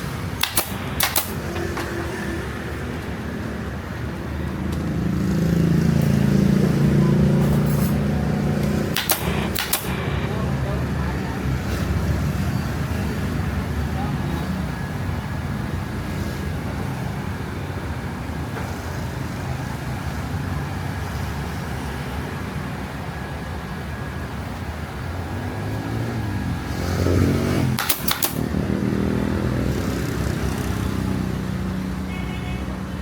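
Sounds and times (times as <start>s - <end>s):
motorbike engines running: 0.0s - 33.0s
sharp clicks: 0.1s - 1.9s, 8.6s - 10.3s, 27.8s - 28.6s.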